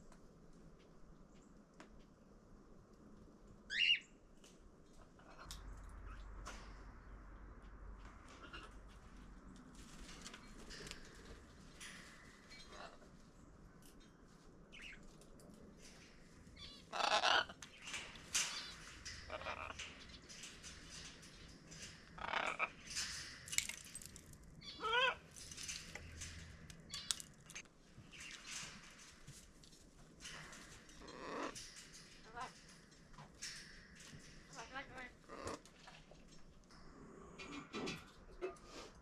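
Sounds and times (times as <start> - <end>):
parrots squawking and chirping: 12.5 - 13.0, 16.6 - 20.4, 22.2 - 23.3, 24.6 - 25.3.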